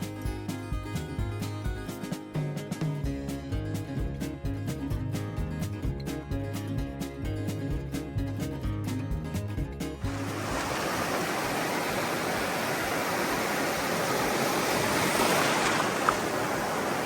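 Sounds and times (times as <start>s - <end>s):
waves breaking on beach: 10.0s - 17.0s.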